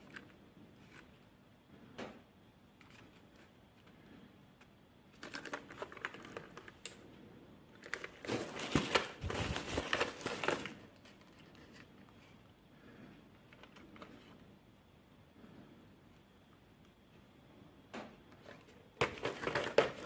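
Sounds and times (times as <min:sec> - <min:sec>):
small objects clicking and crinkling: 0:04.6 - 0:07.0.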